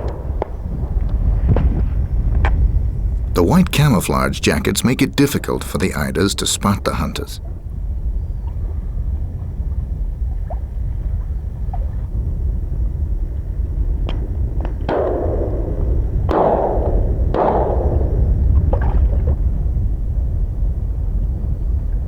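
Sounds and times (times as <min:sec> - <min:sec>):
shotgun shots: 0:00.0 - 0:02.0, 0:14.9 - 0:18.4
steady low rumble: 0:00.0 - 0:22.0.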